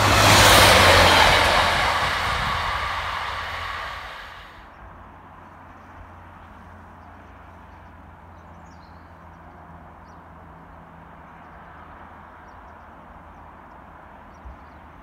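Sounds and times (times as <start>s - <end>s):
low bump: 0.0s - 4.6s.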